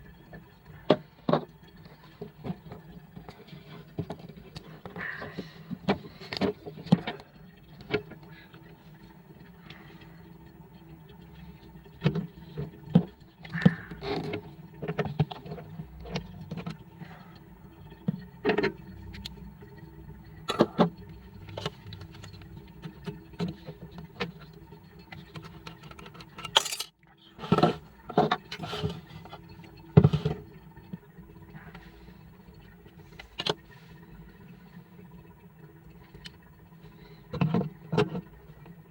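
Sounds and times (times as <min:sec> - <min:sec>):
steady low hum: 0:15.6 - 0:25.2
tools and small parts rattling: 0:25.7 - 0:28.9.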